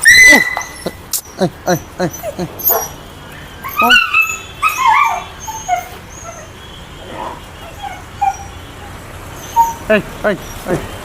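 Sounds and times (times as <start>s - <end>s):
puppy whimpering yelps: 0.0s - 1.0s, 2.1s - 3.0s, 3.6s - 6.5s, 7.6s - 10.6s
puppy whining: 0.0s - 3.0s, 3.6s - 6.6s, 7.2s - 10.8s.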